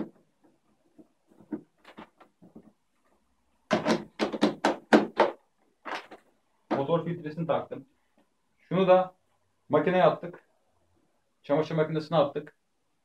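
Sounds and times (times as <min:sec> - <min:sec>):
sharp knocks and clicks: 0:03.7 - 0:06.9
plastic parts rustling: 0:05.8 - 0:06.3.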